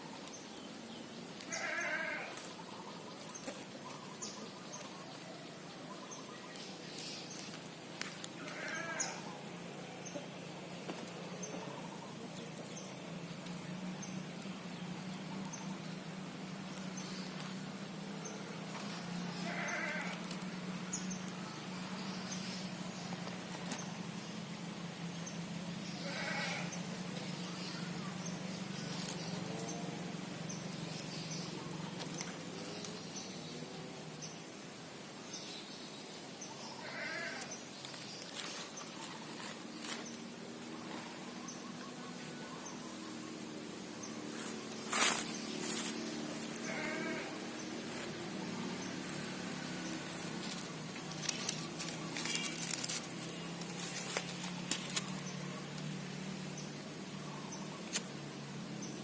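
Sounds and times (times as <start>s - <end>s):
animal bleating: 1.5s - 2.5s, 8.4s - 9.4s, 19.2s - 20.3s, 26.0s - 26.8s, 36.8s - 37.5s, 46.4s - 47.5s.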